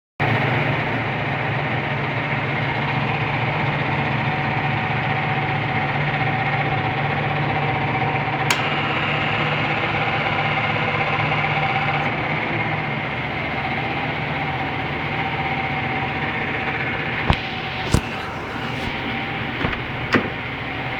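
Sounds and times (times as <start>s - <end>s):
sharp click: 17.3s - 19.9s.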